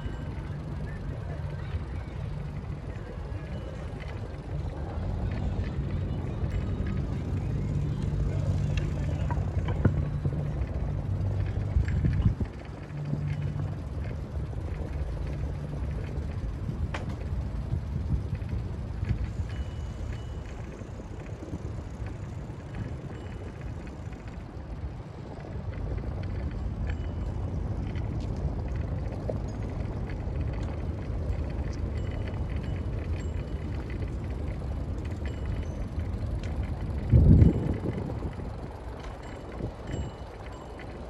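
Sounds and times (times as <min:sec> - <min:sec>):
bicycle tyres rumbling: 0:00.0 - 0:41.0
wind on microphone: 0:08.3 - 0:40.5.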